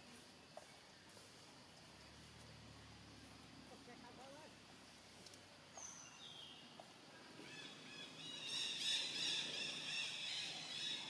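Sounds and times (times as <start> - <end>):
birds whistling calls: 5.7 - 11.0.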